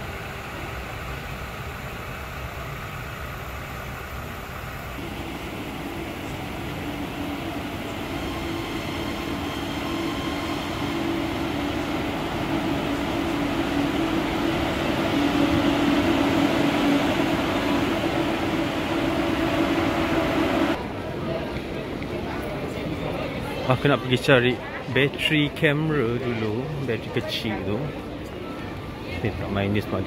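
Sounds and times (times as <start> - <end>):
electric train motor hum: 0.0 - 20.9
train wheels rumbling: 0.0 - 23.6.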